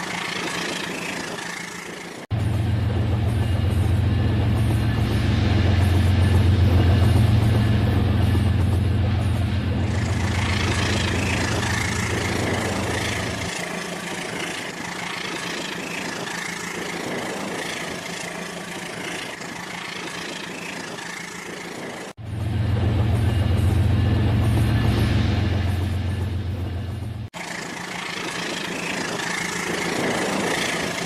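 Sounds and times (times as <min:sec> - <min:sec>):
toy train running on track: 0:10.0 - 0:22.2, 0:27.4 - 0:31.0.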